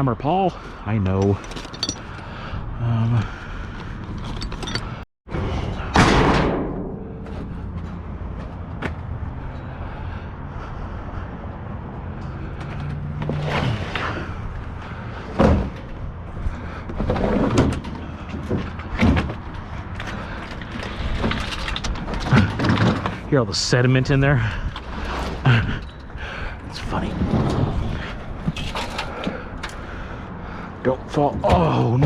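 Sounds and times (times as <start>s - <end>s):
metal bang: 5.9s - 7.4s.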